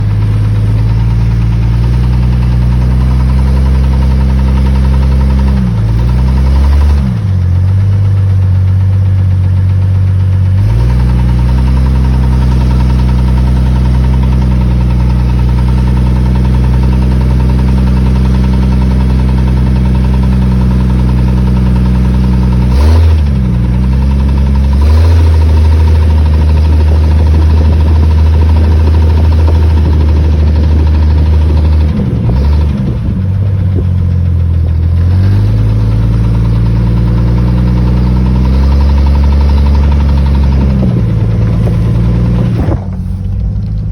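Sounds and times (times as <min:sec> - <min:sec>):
car engine running: 0:00.0 - 0:43.9
engine clicking and ticking: 0:00.0 - 0:43.9.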